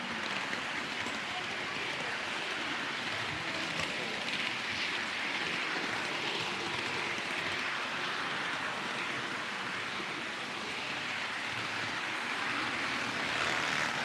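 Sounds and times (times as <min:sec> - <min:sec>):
model train whirring: 0:00.0 - 0:14.0.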